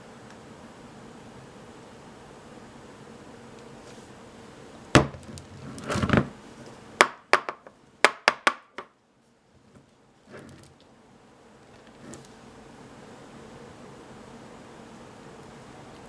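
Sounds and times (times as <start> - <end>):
faint steady hiss: 0.0 - 16.0
hard objects knocking on surface: 5.0 - 5.3, 7.0 - 8.9
short scraping: 12.0 - 12.3.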